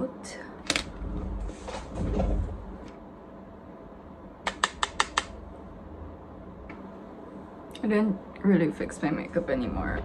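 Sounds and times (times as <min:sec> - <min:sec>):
low steady hum: 0:00.0 - 0:10.0
sharp clicks: 0:04.5 - 0:05.3.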